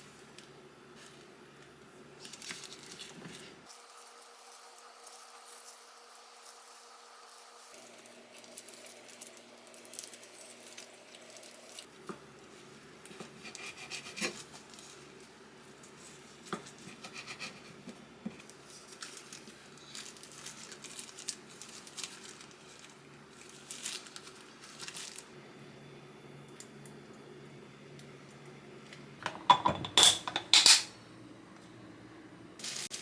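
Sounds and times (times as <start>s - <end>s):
small objects rubbing and rustling: 2.2s - 11.9s, 18.4s - 25.3s, 32.6s - 33.0s.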